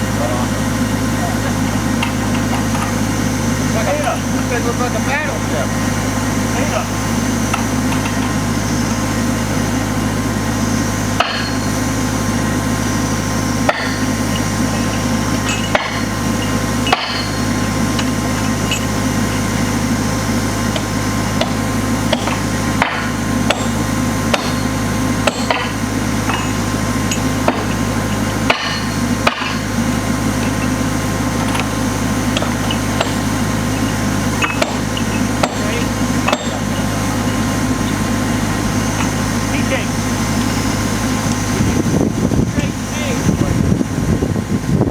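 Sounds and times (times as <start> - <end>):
engine running: 0.0 - 44.9
hammer striking railroad spikes: 11.2 - 11.8, 13.6 - 18.9, 20.7 - 29.8, 32.3 - 33.4, 34.4 - 36.8.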